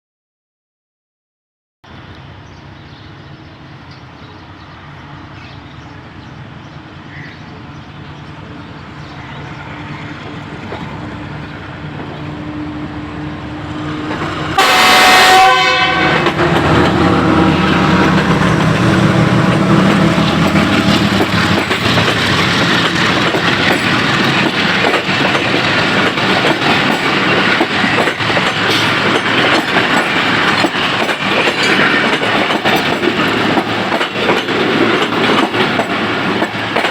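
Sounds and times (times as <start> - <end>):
diesel locomotive approaching: 1.8 - 36.9
locomotive horn: 12.3 - 18.2
train wheel clatter: 16.0 - 36.9.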